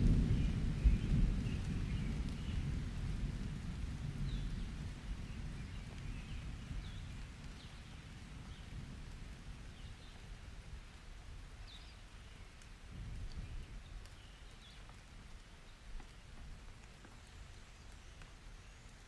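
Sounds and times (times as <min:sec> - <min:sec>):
thunder rumble: 0:00.0 - 0:10.0
light rain: 0:00.0 - 0:19.0.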